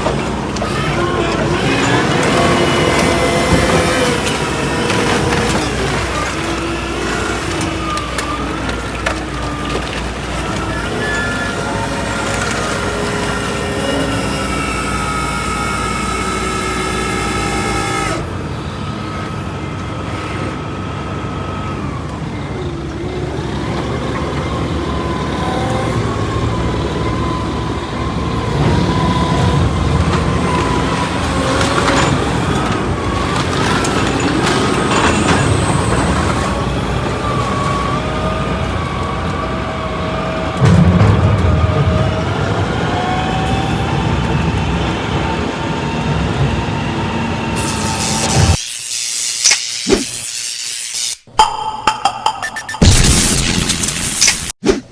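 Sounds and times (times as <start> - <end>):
truck engine rumbling: 0.0 - 48.6.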